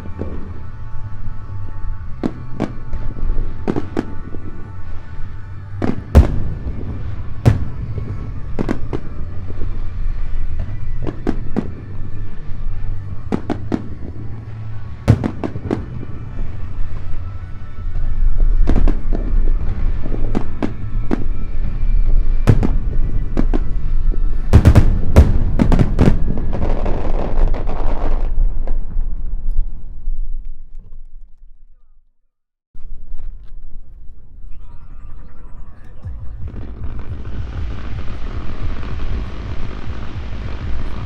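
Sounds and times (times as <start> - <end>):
music: 0.0 - 29.5, 32.8 - 41.0
fireworks bangs: 5.8 - 12.0, 13.3 - 29.1.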